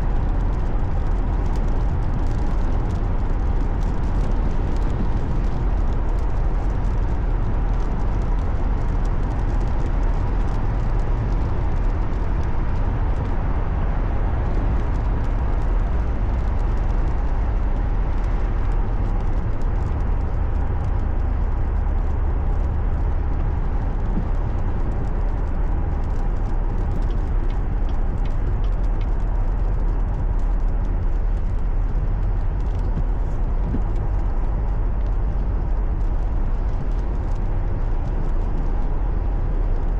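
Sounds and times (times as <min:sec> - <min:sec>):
car driving road rumble: 0:00.0 - 0:39.9.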